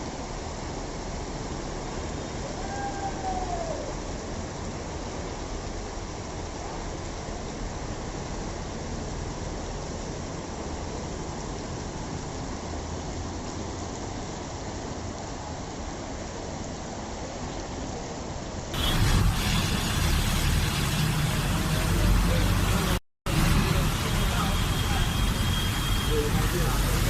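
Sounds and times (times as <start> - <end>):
steady rain: 0.0 - 27.0
water rushing: 0.0 - 27.0
motor vehicle rumble: 18.8 - 27.0.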